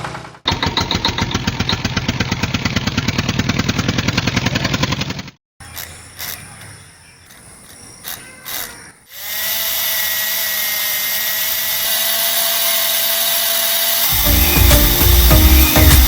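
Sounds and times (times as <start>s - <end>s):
small electric motor whirring: 5.7s - 6.7s, 7.3s - 16.0s.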